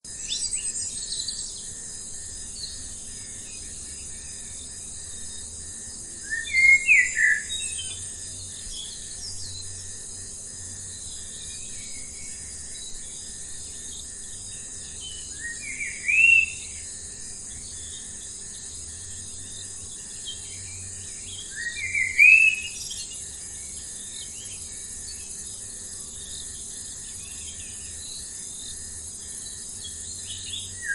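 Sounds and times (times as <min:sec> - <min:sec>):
insects chirring: 0:00.1 - 0:30.9.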